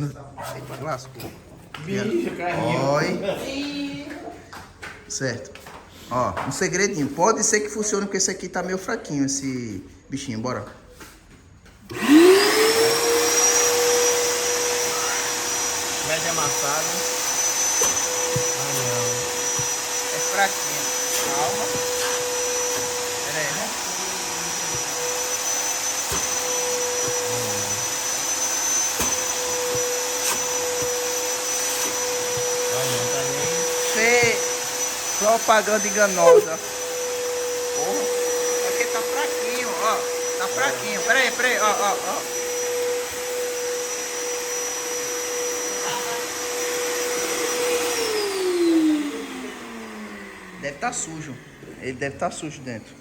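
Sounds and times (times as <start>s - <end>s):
vacuum cleaner motor whining: 11.8s - 53.0s.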